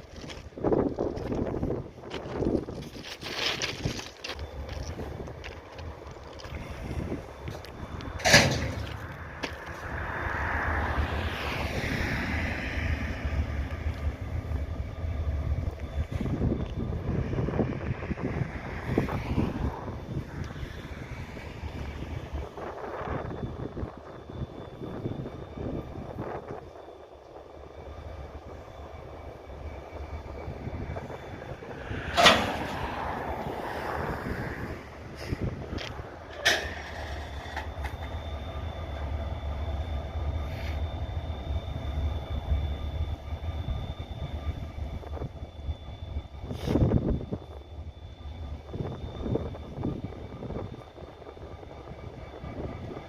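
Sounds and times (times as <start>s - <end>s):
railroad couplers banging: 0.0s - 10.0s, 11.0s - 53.0s
steady low rumble: 0.0s - 53.0s
train couplers slamming: 7.8s - 9.2s, 32.0s - 33.4s, 36.2s - 38.2s.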